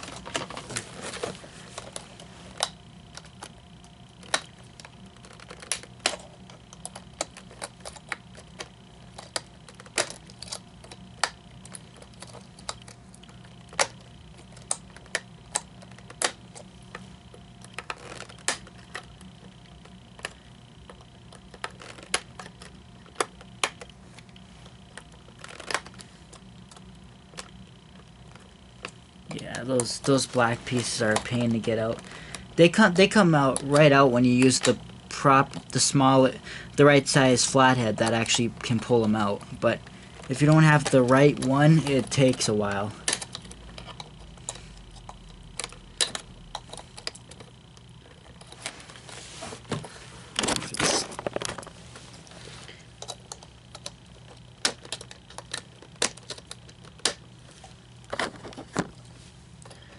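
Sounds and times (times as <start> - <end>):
steady low hum: 0.0 - 59.9
screwdriver clicking on plastic: 53.0 - 57.2.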